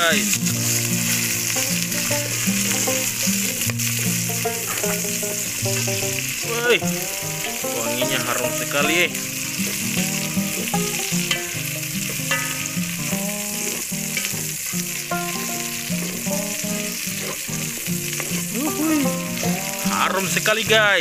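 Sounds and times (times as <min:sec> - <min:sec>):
vegetables sizzling in hot oil: 0:00.0 - 0:21.0.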